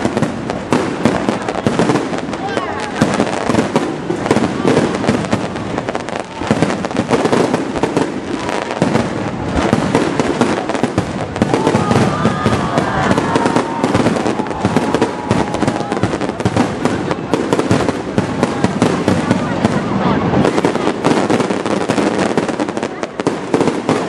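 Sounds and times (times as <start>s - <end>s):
fireworks bursting and crackling: 0.0s - 24.0s
fireworks sharp bangs: 0.0s - 24.0s.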